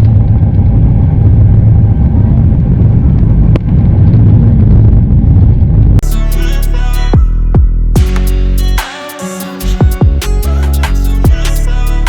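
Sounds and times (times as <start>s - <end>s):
electronic background music: 6.0s - 12.0s.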